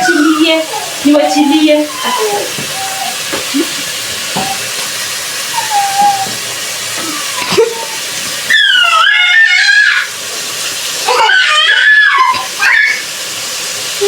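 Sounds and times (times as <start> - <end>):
young child squealing: 0.0 - 3.2, 5.5 - 10.2, 11.0 - 13.1
pot boiling hiss: 0.0 - 14.0.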